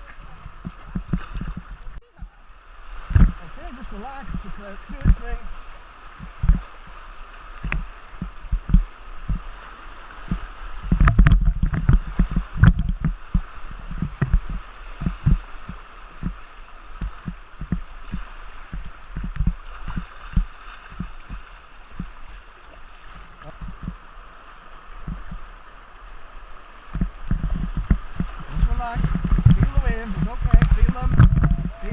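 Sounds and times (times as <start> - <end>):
water slapping against kayak hull: 0.0 - 25.7, 26.7 - 31.9
river rushing: 1.7 - 31.9.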